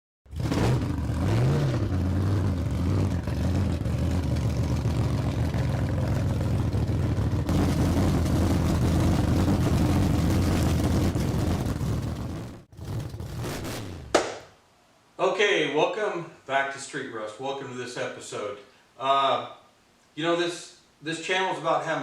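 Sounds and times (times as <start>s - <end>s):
car engine idling: 0.3s - 13.5s.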